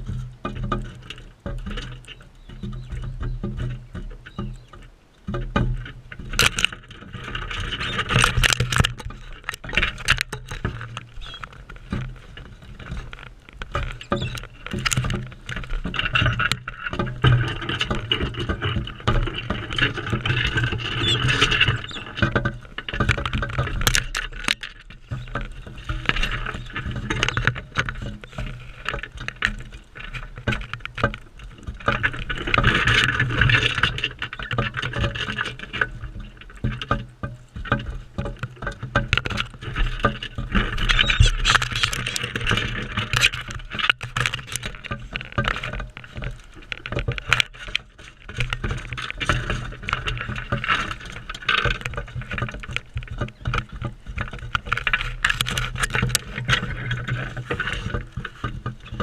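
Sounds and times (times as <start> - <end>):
beaks and feet tapping feeder: 1.5 - 5.8, 11.2 - 11.6, 13.7 - 15.3, 21.0 - 25.4, 40.9 - 43.3.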